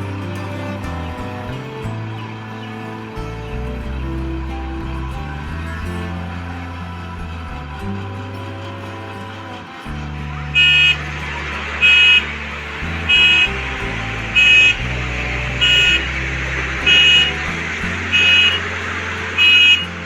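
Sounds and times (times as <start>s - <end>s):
music: 0.0s - 20.0s
reversing alarm beeping: 9.9s - 20.0s.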